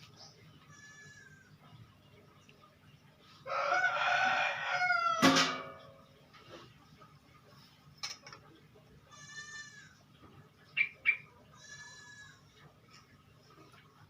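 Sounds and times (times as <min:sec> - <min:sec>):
faint bleat-like animal calls: 0:00.6 - 0:01.7, 0:09.0 - 0:10.0, 0:11.5 - 0:12.6.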